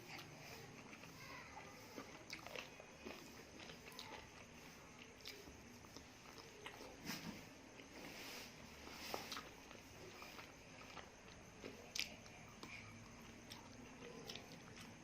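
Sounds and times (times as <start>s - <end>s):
soft chewing: 0.0s - 15.0s
wet mouth clicks: 11.9s - 12.7s.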